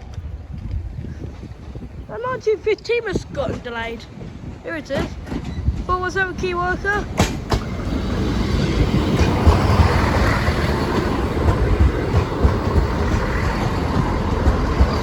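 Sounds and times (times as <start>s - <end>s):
train wheels rumbling on rail: 0.0s - 15.0s
wheels thumping over rail joints: 4.8s - 15.0s.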